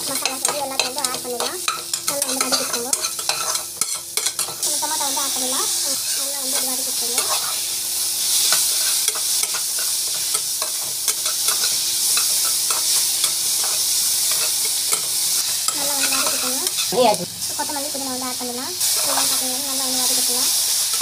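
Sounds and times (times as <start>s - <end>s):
onions and tomatoes sizzling in oil: 0.0s - 21.0s.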